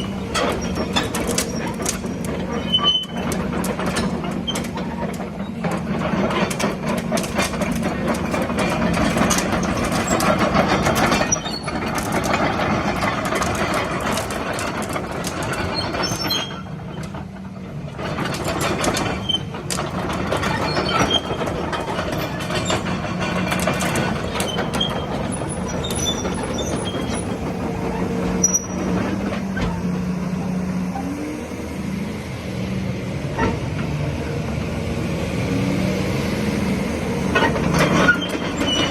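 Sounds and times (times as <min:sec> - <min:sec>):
excavator diesel engine humming: 0:00.0 - 0:38.9.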